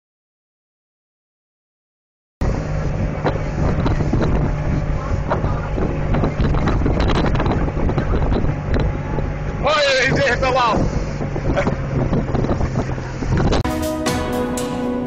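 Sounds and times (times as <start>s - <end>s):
low engine hum: 2.4s - 13.7s
wind buffeting microphone: 2.4s - 13.7s.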